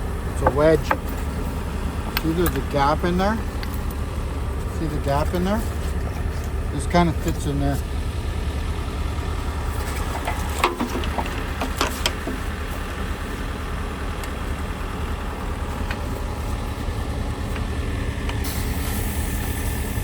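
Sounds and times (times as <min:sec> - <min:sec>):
diesel engine idling: 0:00.0 - 0:20.0
sharp clicks and knocks: 0:00.4 - 0:01.4, 0:09.8 - 0:12.5.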